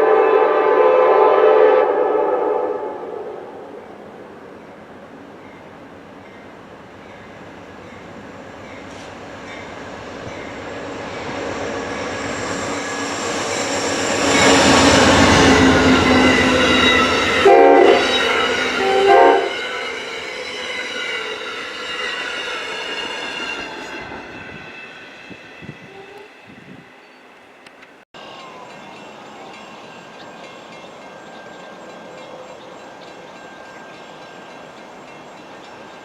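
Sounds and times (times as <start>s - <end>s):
train horn blasts: 0.0s - 3.8s, 10.8s - 24.7s
diesel train passing: 0.0s - 36.0s
high wheel squeal: 8.7s - 27.3s.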